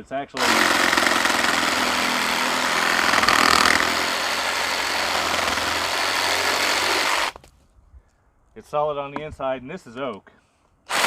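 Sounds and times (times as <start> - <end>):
reciprocating saw cutting wood: 0.0 - 7.4.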